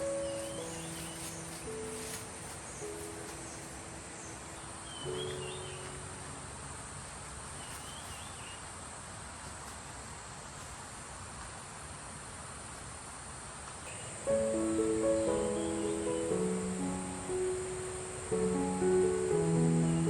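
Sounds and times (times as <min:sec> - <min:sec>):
bird chirping: 0:00.0 - 0:08.8, 0:13.8 - 0:20.0
insects chirring: 0:00.0 - 0:20.0.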